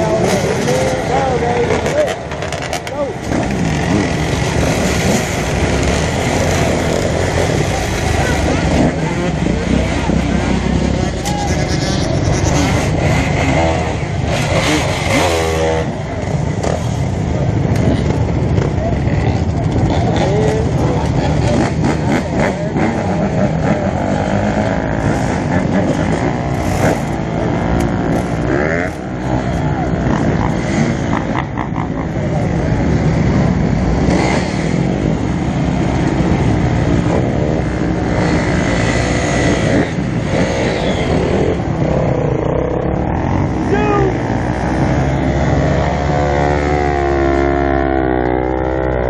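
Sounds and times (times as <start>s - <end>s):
dirt bike engines revving: 0.0s - 49.0s.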